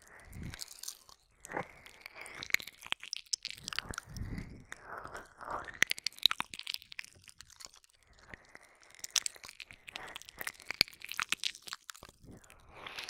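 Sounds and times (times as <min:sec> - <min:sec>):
tongue and lip clicks: 0:00.0 - 0:13.0
soft breathing: 0:03.9 - 0:05.6, 0:12.2 - 0:13.0.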